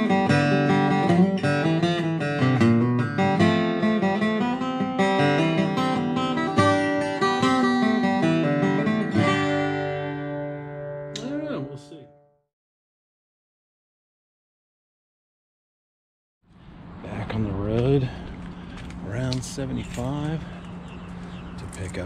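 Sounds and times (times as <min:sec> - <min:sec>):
acoustic guitar tune: 0:00.0 - 0:12.4.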